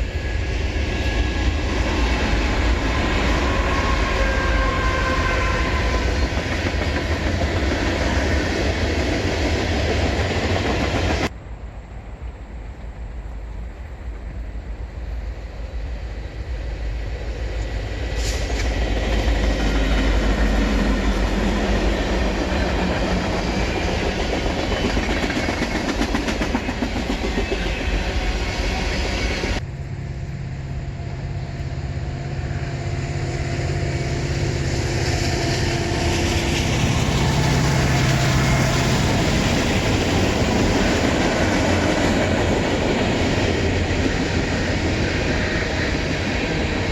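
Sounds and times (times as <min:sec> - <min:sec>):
diesel locomotive engine drone: 0:00.0 - 0:46.9
train wheels clacking on rails: 0:00.6 - 0:11.3, 0:17.9 - 0:29.6.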